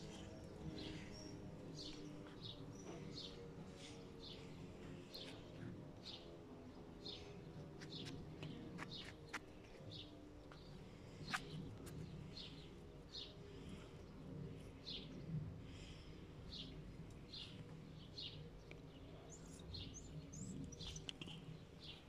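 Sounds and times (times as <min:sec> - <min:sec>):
faint low hum: 0:00.0 - 0:22.0
small bird chirping: 0:19.3 - 0:22.0.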